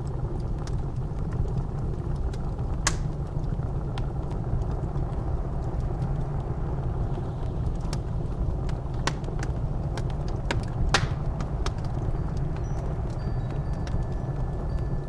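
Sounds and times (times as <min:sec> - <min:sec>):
low rumble of blizzard wind: 0:00.0 - 0:15.0
wood fire crackling: 0:00.0 - 0:15.0
sharp pops of burning wood: 0:02.0 - 0:06.6, 0:07.7 - 0:13.2.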